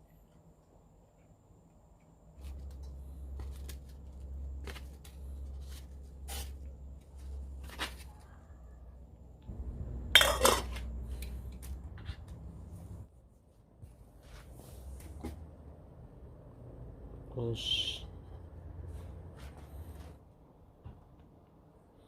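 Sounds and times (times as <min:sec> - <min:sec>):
low rumble: 0:09.4 - 0:13.1
metal cookware clinking: 0:10.1 - 0:10.9.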